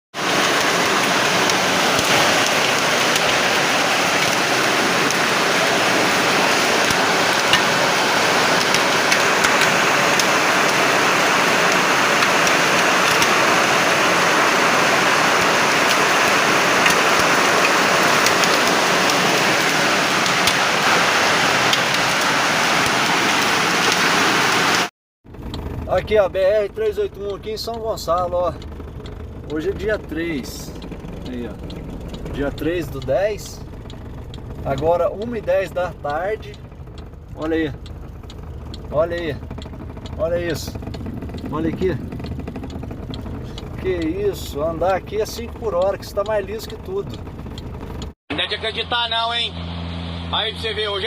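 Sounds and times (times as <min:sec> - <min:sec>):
sharp ticks of impacts: 0:00.2 - 0:20.8, 0:25.3 - 0:48.2
heavy rain downpour: 0:00.2 - 0:24.9.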